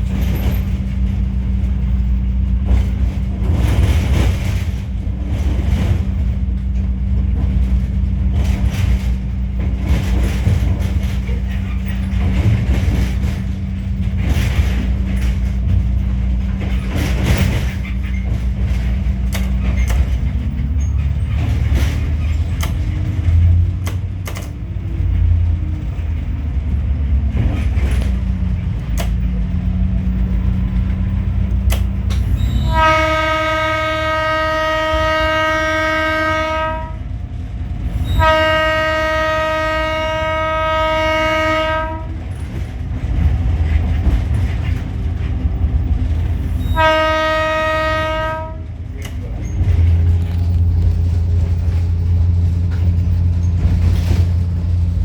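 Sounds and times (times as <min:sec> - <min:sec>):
low rumble of running train: 0:00.0 - 0:55.0
train horn blasts: 0:32.3 - 0:37.1, 0:38.0 - 0:42.2, 0:46.6 - 0:48.7.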